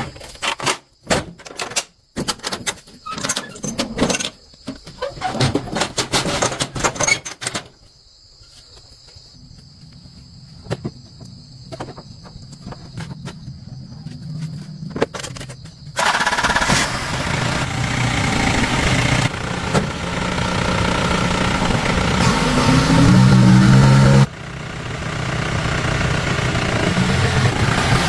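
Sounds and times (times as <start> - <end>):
vehicle engine running: 16.0 - 28.0.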